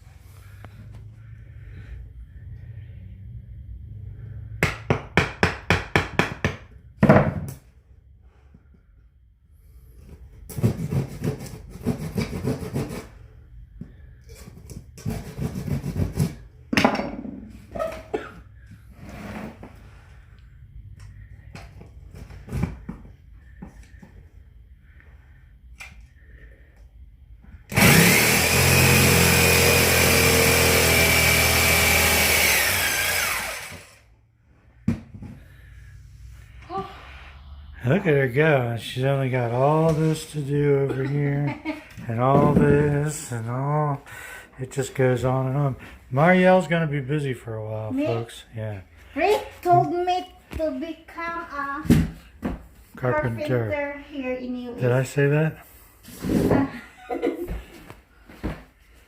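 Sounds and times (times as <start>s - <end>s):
electric power tool whine: 27.7s - 34.1s.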